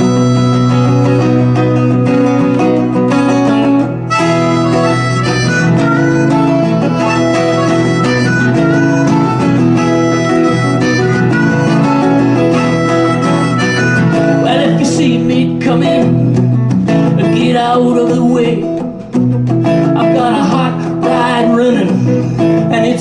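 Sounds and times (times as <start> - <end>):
harmonica melody: 0.0 - 17.2
acoustic guitar: 0.0 - 23.0.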